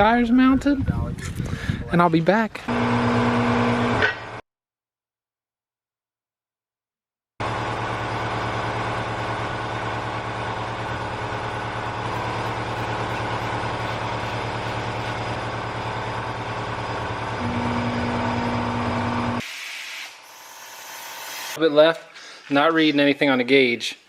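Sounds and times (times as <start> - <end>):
engine running steadily: 7.4 - 19.4
steady higher tone: 17.4 - 19.4.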